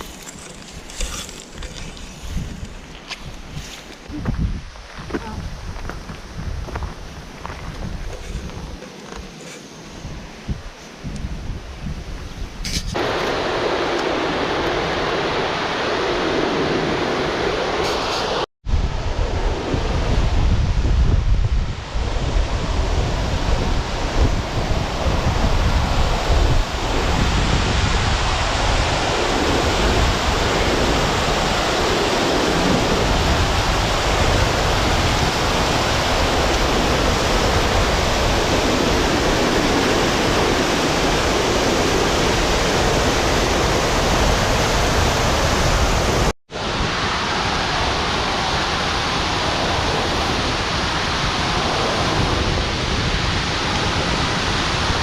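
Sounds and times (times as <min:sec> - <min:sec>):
waterfall roaring: 0:13.0 - 0:18.4, 0:22.7 - 0:55.0.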